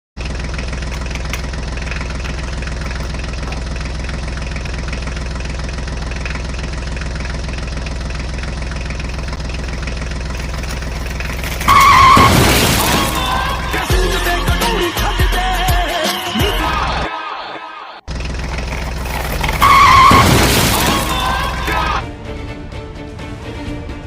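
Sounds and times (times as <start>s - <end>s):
tractor engine idling: 0.2s - 17.1s, 18.1s - 23.2s
loud crash: 11.4s - 13.9s, 19.0s - 22.0s.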